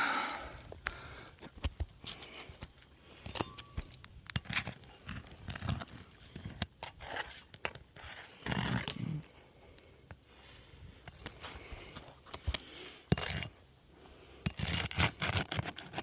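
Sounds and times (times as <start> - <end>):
shingle scraping: 3.2 - 9.2, 14.4 - 16.0.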